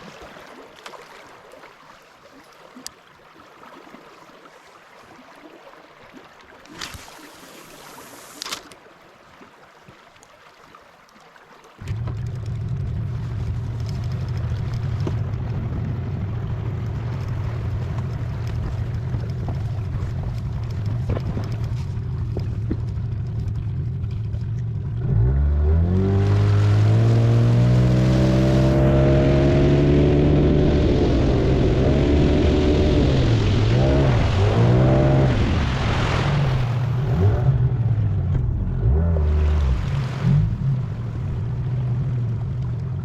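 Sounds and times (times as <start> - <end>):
engine humming and revving: 11.8 - 43.0.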